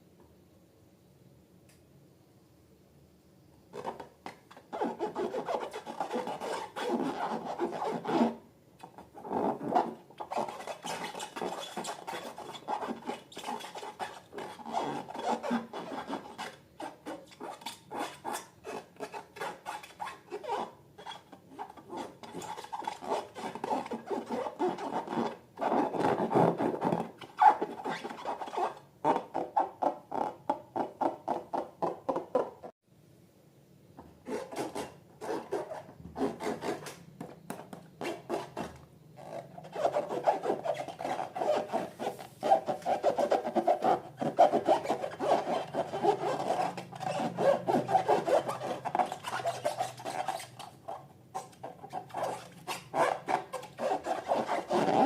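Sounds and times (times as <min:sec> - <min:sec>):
slime rubbing and scraping by hand: 0:39.2 - 0:55.0.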